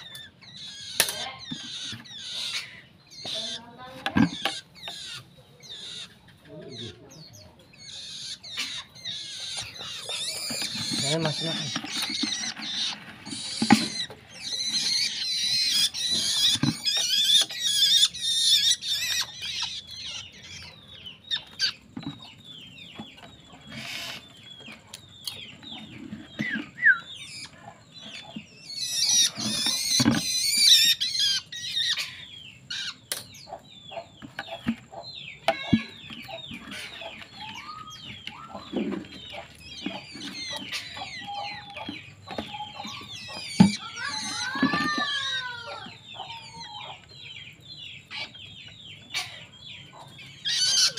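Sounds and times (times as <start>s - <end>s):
bird harsh chattering: 0.0s - 22.3s, 25.2s - 47.0s, 48.0s - 50.9s
bird chirping: 0.0s - 50.9s.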